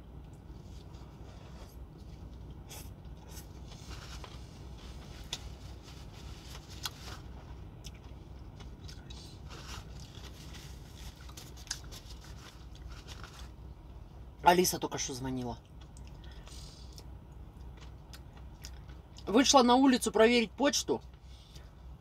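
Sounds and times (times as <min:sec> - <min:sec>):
steady low hum: 0:00.0 - 0:22.0
chewing crunchy salad: 0:00.2 - 0:13.6, 0:15.6 - 0:19.3.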